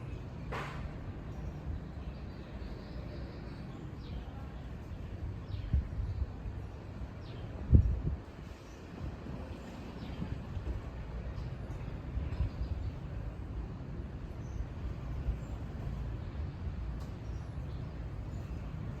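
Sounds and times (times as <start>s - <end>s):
wind buffeting microphone: 4.8s - 19.0s.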